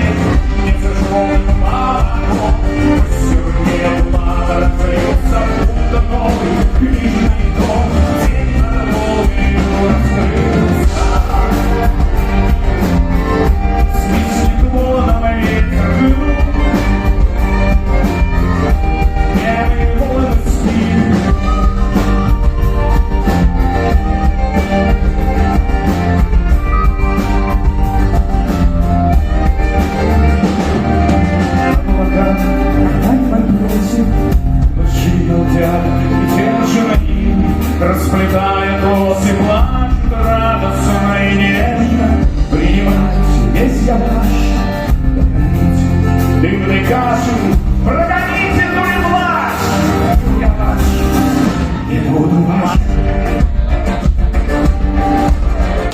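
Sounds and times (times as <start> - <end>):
folk-rock band playing live: 0.0 - 55.9
person singing: 0.0 - 55.9.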